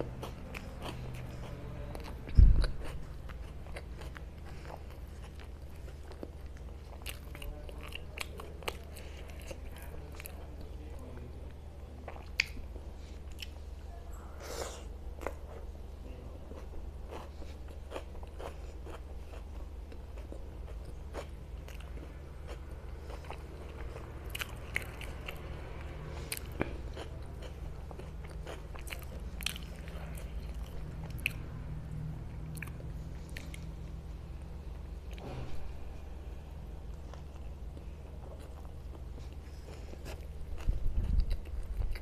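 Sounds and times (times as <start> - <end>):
chewing and wet mouth clicks: 11.5 - 12.7, 26.2 - 31.4, 32.4 - 33.7.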